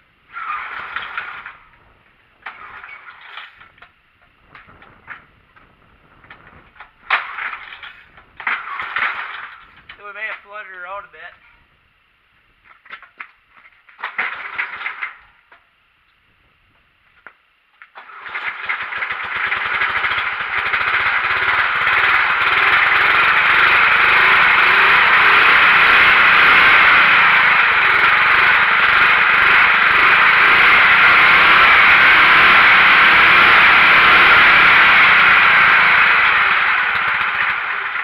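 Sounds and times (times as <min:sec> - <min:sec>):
small engine starting and running: 0:00.3 - 0:01.8, 0:02.4 - 0:03.9, 0:06.3 - 0:10.0, 0:14.0 - 0:15.6, 0:17.9 - 0:38.0.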